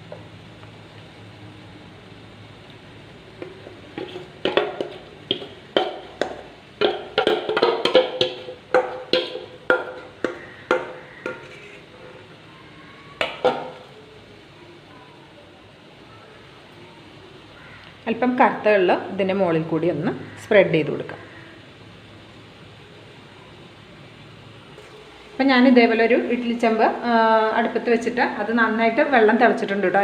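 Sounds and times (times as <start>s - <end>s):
spoon tapping metal bowl: 3.4s - 11.8s.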